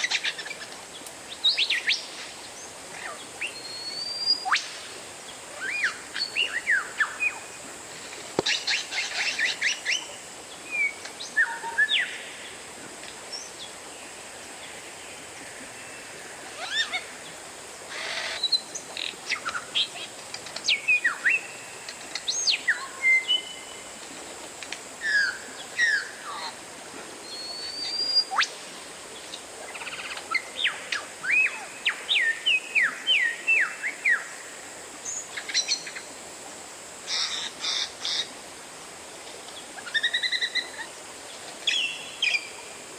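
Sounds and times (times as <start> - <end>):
bird singing whistled notes: 3.4 - 4.6.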